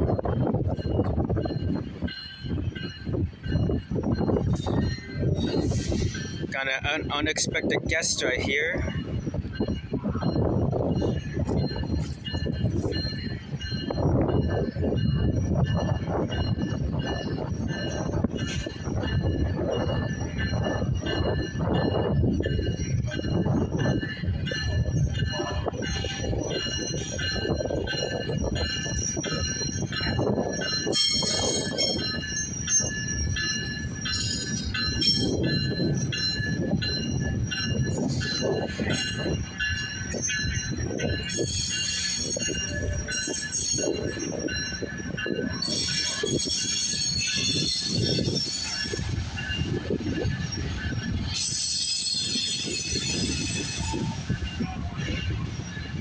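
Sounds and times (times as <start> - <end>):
train wheels rumbling: 0.0 - 56.0
high-pitched wheel squeal: 51.4 - 54.6.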